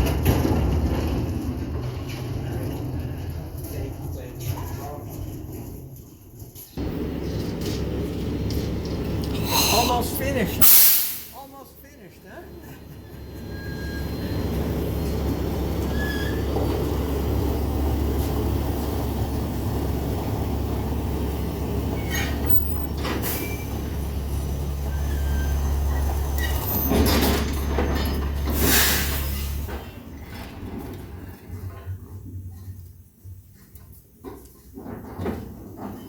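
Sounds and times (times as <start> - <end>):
air compressor humming: 6.8 - 11.6
air hissing bursts: 10.6 - 11.5, 28.6 - 29.6.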